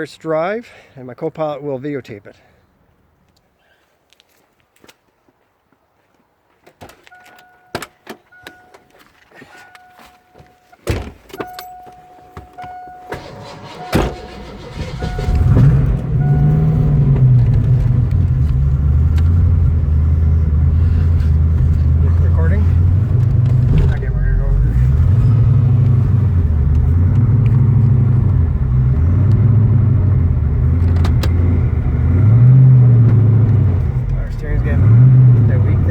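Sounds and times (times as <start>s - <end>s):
pulsing warning tone: 12.1s - 17.0s
engine starting and idling: 12.9s - 18.4s
loud thumps: 22.8s - 28.4s.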